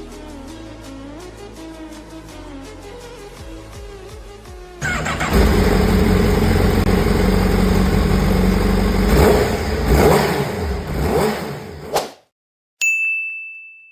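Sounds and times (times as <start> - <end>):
motorcycle engine revving: 4.8 - 12.0.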